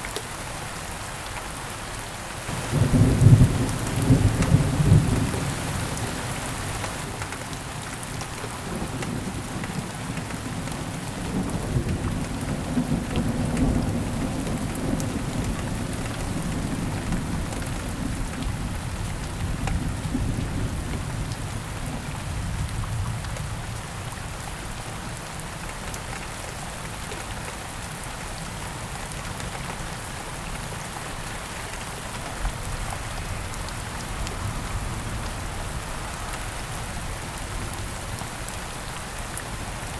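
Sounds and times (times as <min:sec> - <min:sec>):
heavy rain: 0:00.0 - 0:39.9
low rolling thunder: 0:02.5 - 0:07.0.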